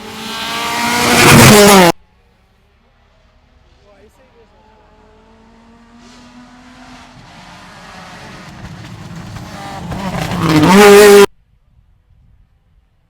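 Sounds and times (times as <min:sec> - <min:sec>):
rally car engine revving: 0:00.0 - 0:02.0, 0:04.8 - 0:11.3.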